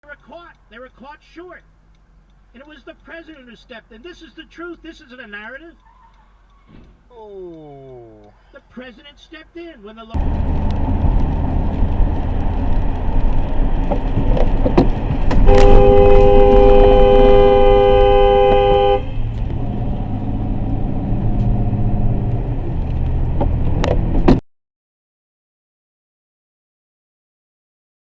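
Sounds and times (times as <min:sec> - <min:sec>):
vehicle road and engine rumble: 0:00.1 - 0:07.1, 0:10.2 - 0:24.4
two-tone car horn: 0:15.4 - 0:19.4.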